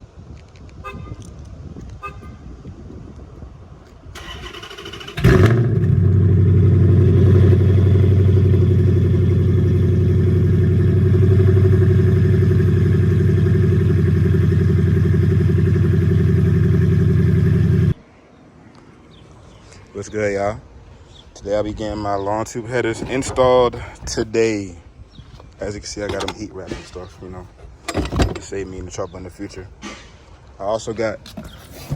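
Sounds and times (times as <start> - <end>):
car engine starting and idling: 4.1 - 18.0.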